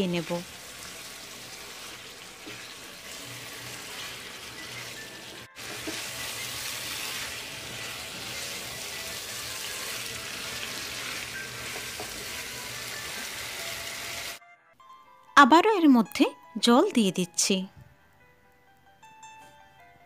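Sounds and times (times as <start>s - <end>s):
curry sizzling in a pan: 0.0s - 14.4s.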